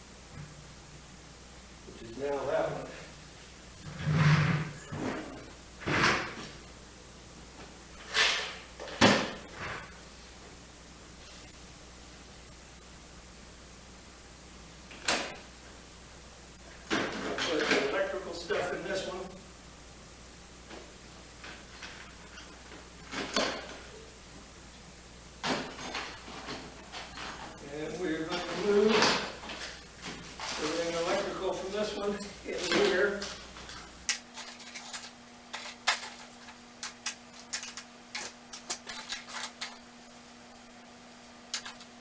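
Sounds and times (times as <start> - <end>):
tools clunking and scraping: 32.1 - 39.9.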